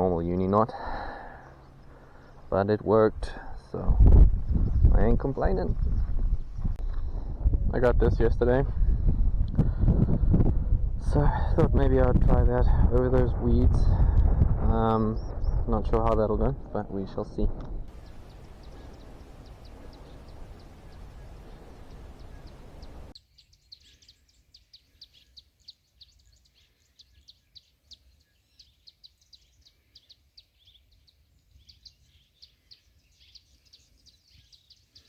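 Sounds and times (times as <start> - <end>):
wind buffeting microphone: 0.0 - 23.2
small birds chirping: 0.0 - 35.0.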